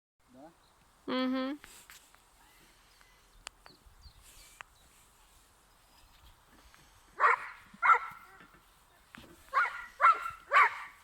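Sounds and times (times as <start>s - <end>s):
dog barking: 7.2s - 8.4s, 9.5s - 11.0s.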